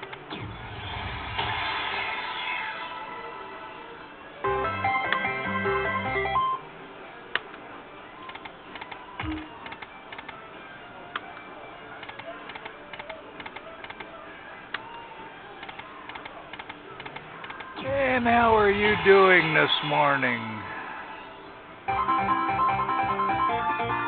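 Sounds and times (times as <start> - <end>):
slot machine electronic jingle: 4.5 - 6.7, 21.9 - 24.0
light scattered clicks: 15.6 - 17.7.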